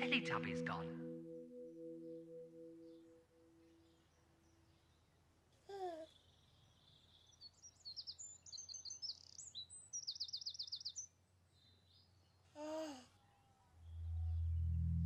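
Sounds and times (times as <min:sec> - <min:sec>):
birds chirping: 0:06.0 - 0:12.3.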